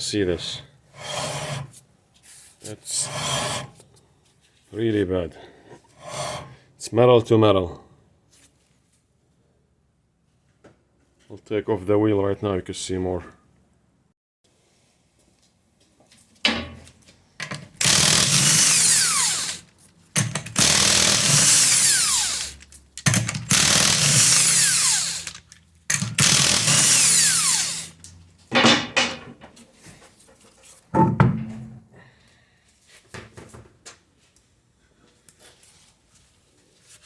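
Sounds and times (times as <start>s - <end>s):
impact wrench spinning: 17.5s - 28.0s.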